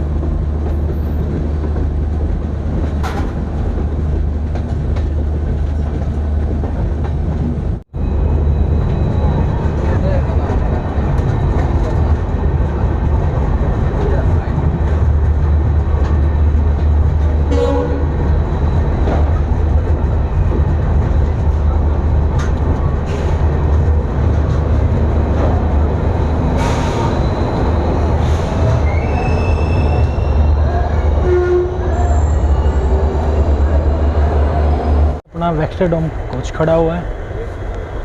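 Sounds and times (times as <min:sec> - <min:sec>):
rail clicks: 0:00.0 - 0:07.8, 0:08.8 - 0:32.0
train rumbling on rails: 0:00.0 - 0:38.0
train wheel squeals: 0:08.0 - 0:11.7, 0:26.2 - 0:34.2.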